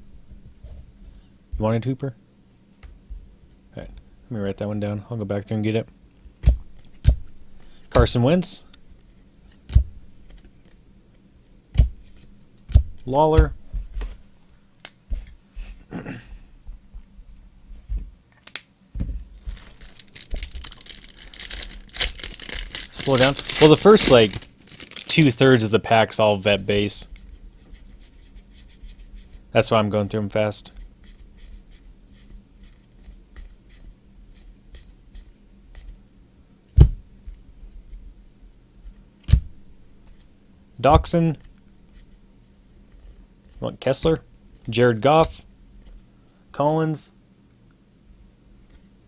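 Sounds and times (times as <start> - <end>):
faint low hum: 0.0 - 49.0
loud thump: 36.8 - 37.0.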